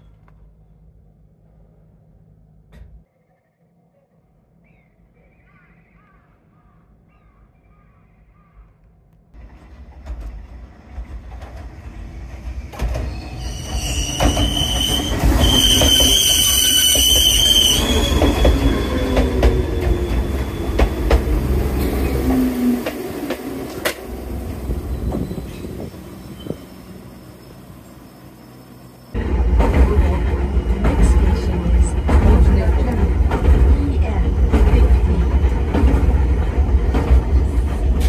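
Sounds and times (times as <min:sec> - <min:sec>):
train clattering over rail joints: 0:09.4 - 0:26.7, 0:29.2 - 0:38.0
train wheels rumbling: 0:09.4 - 0:38.0
high-pitched metallic squeal: 0:13.1 - 0:20.7.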